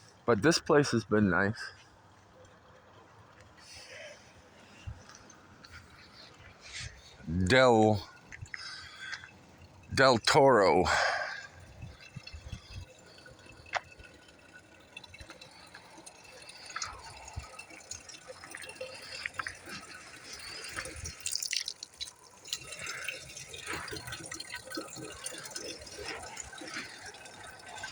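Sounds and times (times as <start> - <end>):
water dripping and trickling: 1.7 - 27.9.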